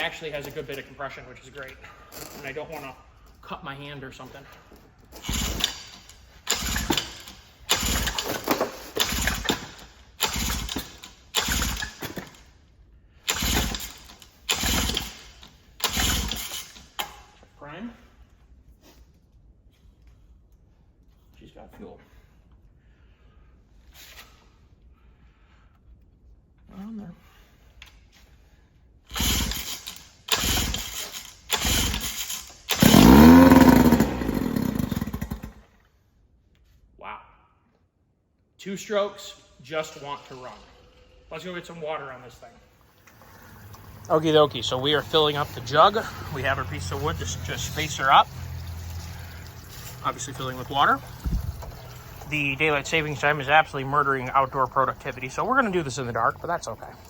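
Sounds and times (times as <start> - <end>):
pull-starter cranking outboard engine: 5.2 - 12.4, 13.3 - 17.1, 29.1 - 35.7, 43.1 - 57.0.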